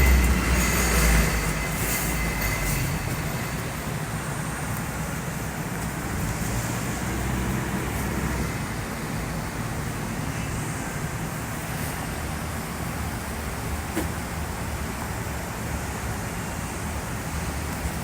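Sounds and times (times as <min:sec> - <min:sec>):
boat motor running: 0:00.0 - 0:10.2
water noise: 0:00.0 - 0:18.0
wind: 0:00.0 - 0:18.0.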